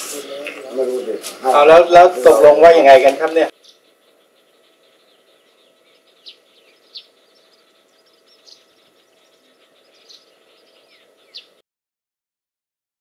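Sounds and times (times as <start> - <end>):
birds chirping: 0.0 - 11.6
sharp loud bird chirps: 3.5 - 11.6.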